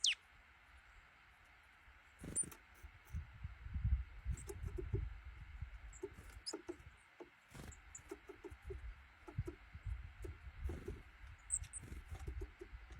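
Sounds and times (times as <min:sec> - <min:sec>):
bird squeaky chirps: 0:00.0 - 0:00.2, 0:02.2 - 0:02.6, 0:10.7 - 0:12.7
bird rustling and scratching: 0:05.8 - 0:12.9.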